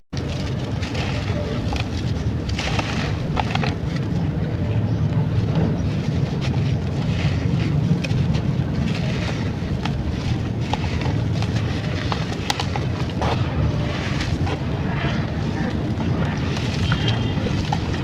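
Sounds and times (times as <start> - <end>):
sand-clay crumbling: 0.2 - 4.6, 5.2 - 18.0
low rumble: 0.2 - 18.0
small crackles and clicks: 0.2 - 18.0.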